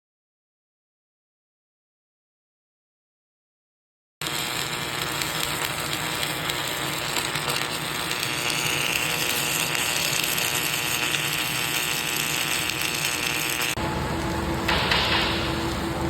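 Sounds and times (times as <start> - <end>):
welding crackling hiss: 4.2 - 16.0.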